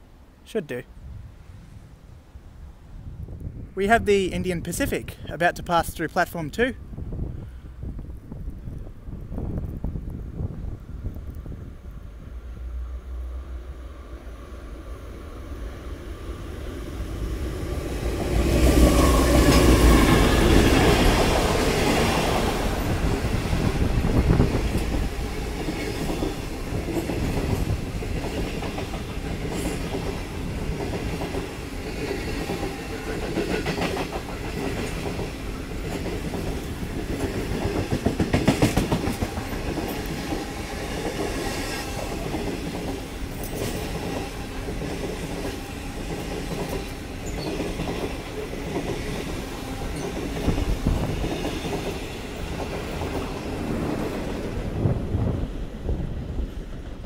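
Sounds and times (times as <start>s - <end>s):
diesel locomotive engine rumbling: 10.2s - 57.0s
wheels clacking over rail joints: 17.6s - 54.6s.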